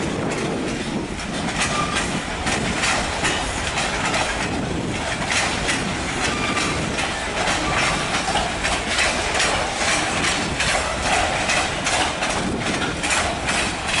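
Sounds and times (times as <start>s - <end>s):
train rolling noise: 0.0s - 14.0s
train wheels clacking over rail joints: 0.0s - 14.0s.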